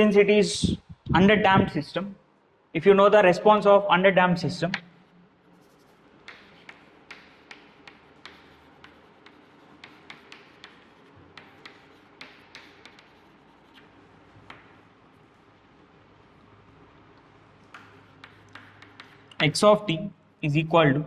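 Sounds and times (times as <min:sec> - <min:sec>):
pen writing taps and clicks: 0:06.2 - 0:14.8, 0:17.6 - 0:19.4.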